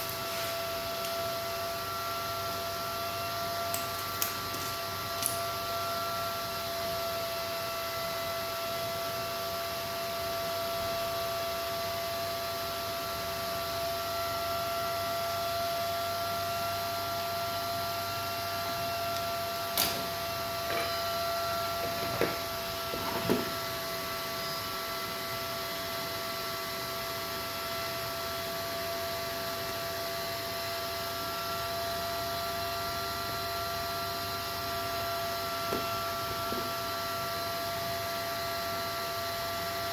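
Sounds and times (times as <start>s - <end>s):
electrical hum: 16.0s - 25.3s, 31.0s - 38.7s.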